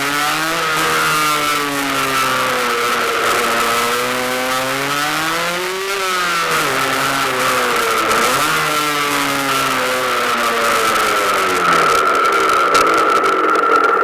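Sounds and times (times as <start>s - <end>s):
high steady whine: 0.0s - 14.0s
motorcycle engine revving: 0.0s - 14.0s.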